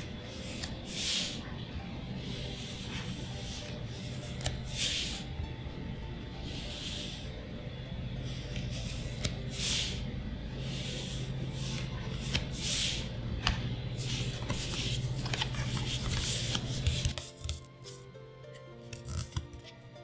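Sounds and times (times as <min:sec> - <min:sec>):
cards sliding: 0:00.0 - 0:01.6, 0:02.2 - 0:05.3, 0:08.2 - 0:18.0, 0:18.8 - 0:19.7
low steady hum: 0:00.0 - 0:20.0.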